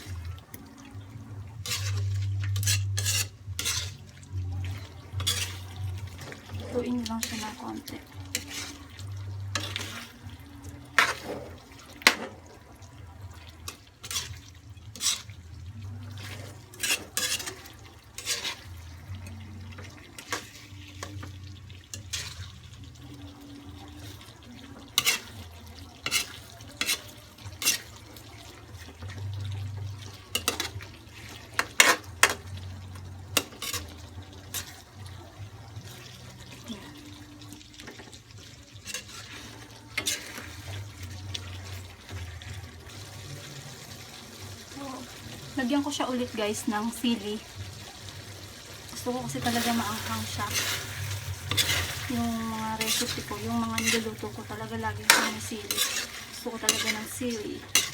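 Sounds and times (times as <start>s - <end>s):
spoon stirring stew in a pot: 0.0s - 57.9s
spoon clinking against pot: 55.1s - 57.9s.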